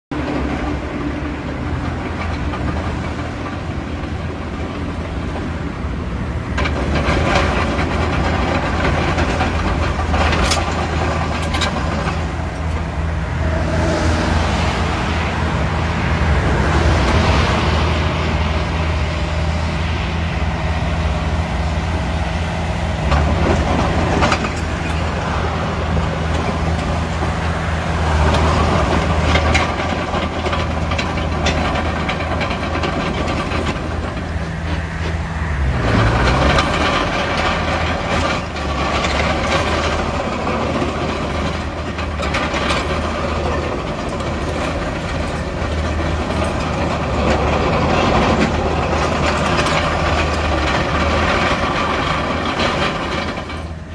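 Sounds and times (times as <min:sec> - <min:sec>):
diesel machinery engines running: 0:00.0 - 0:53.9
metallic knocks and clanks: 0:06.6 - 0:18.0.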